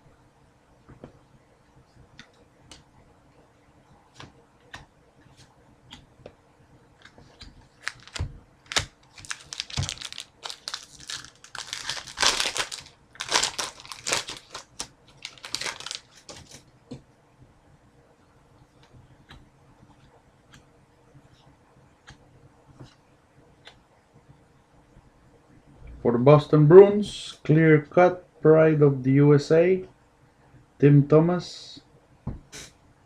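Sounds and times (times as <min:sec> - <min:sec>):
cards shuffling: 0:07.0 - 0:16.6
wrapper tearing and crinkling: 0:07.8 - 0:16.6.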